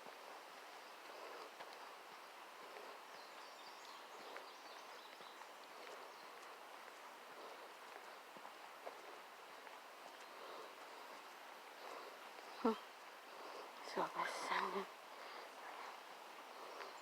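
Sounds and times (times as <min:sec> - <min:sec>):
footsteps on trail: 0:00.0 - 0:17.0
soft steady hiss: 0:00.0 - 0:17.0
faint bird chirps: 0:02.6 - 0:06.6, 0:11.8 - 0:17.0.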